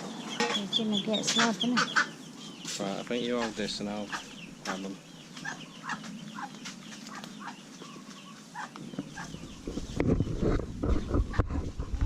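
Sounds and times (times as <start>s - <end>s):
ducklings peeping: 0.0s - 12.0s
low rustling and thumps: 8.9s - 12.0s.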